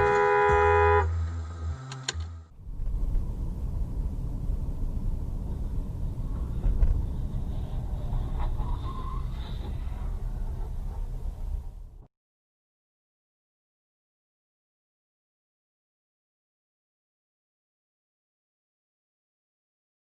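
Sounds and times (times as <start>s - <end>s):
car horn: 0.0s - 2.4s
car driving rumble: 0.0s - 12.1s.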